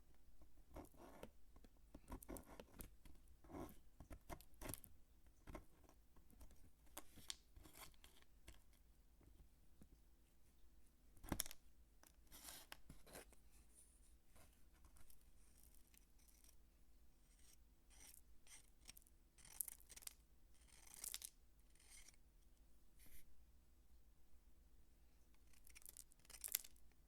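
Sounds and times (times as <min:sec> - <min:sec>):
soap being cut and crumbled: 0:17.9 - 0:22.1, 0:25.4 - 0:26.8.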